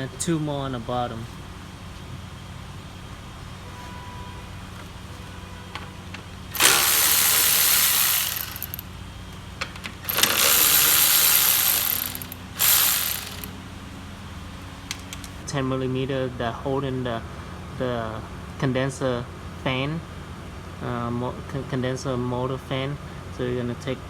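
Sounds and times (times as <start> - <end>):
power tool running: 6.5 - 8.9, 10.0 - 13.6.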